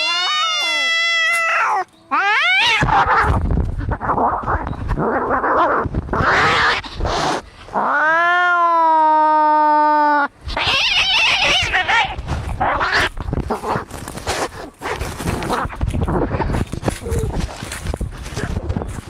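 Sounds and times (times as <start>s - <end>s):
cat yowling: 0.0s - 3.4s, 7.8s - 13.1s
cats hissing and spitting: 2.6s - 8.0s.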